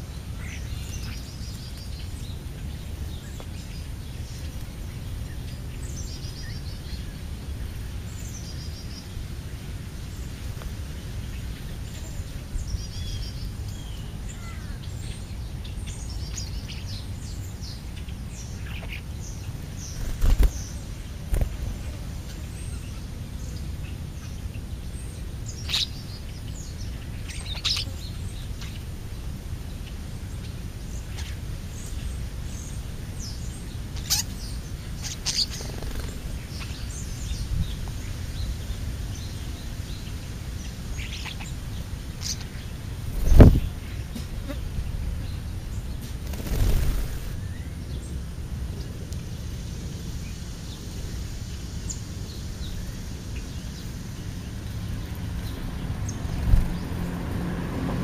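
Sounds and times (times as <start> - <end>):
low outdoor rumble: 0.0 - 58.0
birds chirping and calling: 11.3 - 29.0, 30.3 - 49.0.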